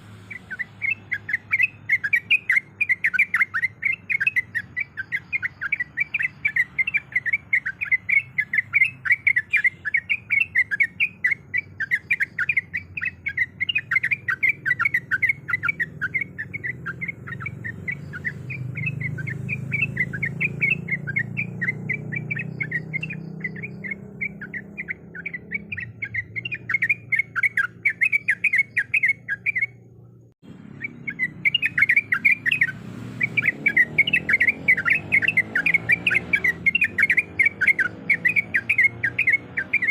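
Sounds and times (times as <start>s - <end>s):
bird chattering: 0.2s - 39.9s.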